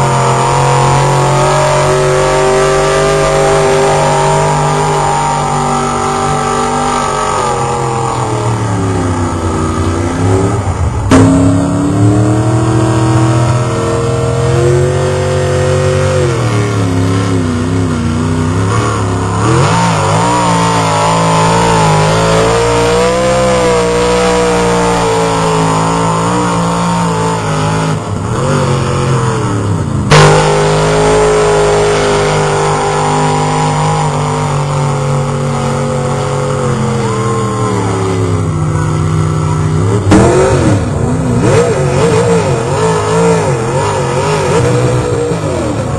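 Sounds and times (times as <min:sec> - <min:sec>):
loud bangs: 0:00.0 - 0:17.2
truck engine revving: 0:00.0 - 0:45.9.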